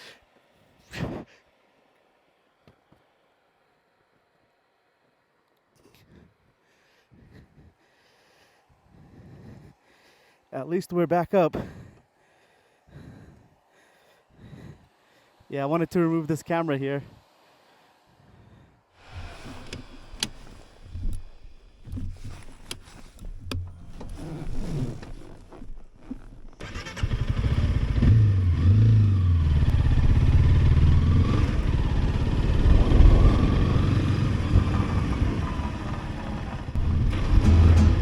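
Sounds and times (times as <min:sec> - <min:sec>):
motorcycle engine starting and running: 0:19.0 - 0:38.0
clicks and knocks of handling gear: 0:19.1 - 0:26.6.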